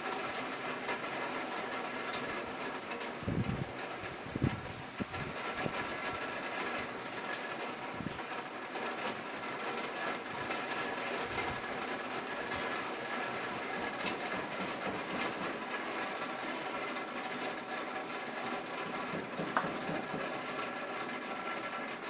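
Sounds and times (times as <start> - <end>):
rain patter: 0.0 - 22.0
rushing wind: 3.2 - 7.2.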